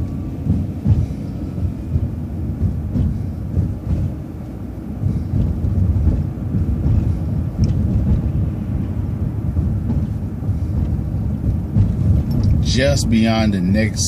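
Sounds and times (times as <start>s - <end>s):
bus engine and road rumble: 0.0s - 14.0s.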